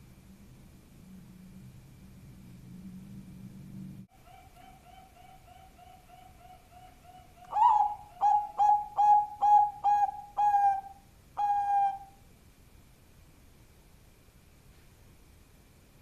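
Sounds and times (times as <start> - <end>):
dove cooing: 4.1 - 12.2.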